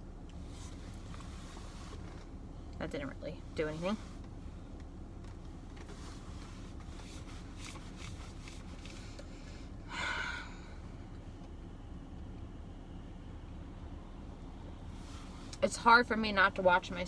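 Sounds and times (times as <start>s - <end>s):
steady low hum: 0.0s - 17.0s
breathy puff of air: 9.3s - 10.9s.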